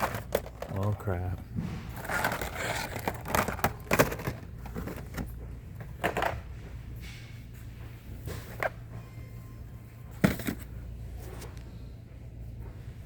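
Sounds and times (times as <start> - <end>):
toy packaging being handled: 0.0 - 1.4, 2.0 - 5.3.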